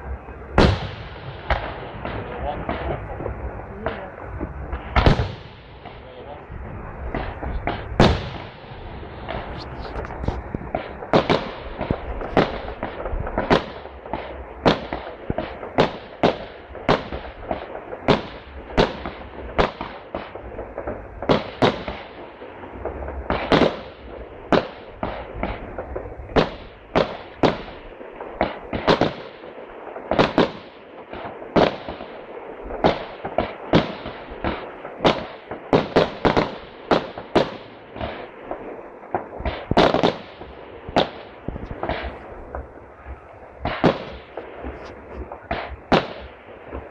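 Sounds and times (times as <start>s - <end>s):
low rumble: 0.0s - 14.6s, 40.4s - 46.9s
firework bursts: 0.0s - 46.9s.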